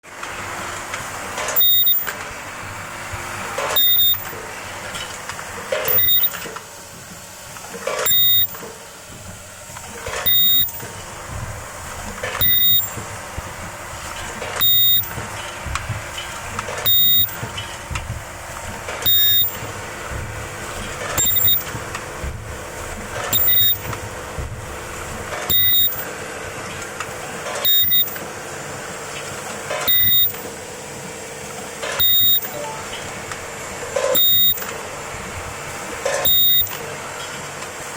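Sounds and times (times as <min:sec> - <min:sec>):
shrill ultrasonic weld burst: 0:01.6 - 0:02.1, 0:03.7 - 0:04.3, 0:05.9 - 0:06.4, 0:08.0 - 0:08.6, 0:10.2 - 0:10.9, 0:12.4 - 0:13.0, 0:14.6 - 0:15.2, 0:16.8 - 0:17.4, 0:19.0 - 0:19.6, 0:21.2 - 0:21.7, 0:23.3 - 0:23.8, 0:25.5 - 0:26.0, 0:27.7 - 0:28.2, 0:29.9 - 0:30.4, 0:32.0 - 0:32.6, 0:34.2 - 0:34.7, 0:36.3 - 0:36.8.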